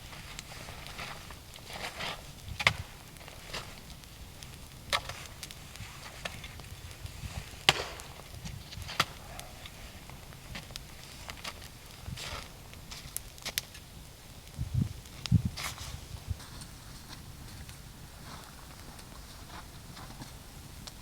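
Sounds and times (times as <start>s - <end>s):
wood chopping strikes: 7.6s - 9.8s.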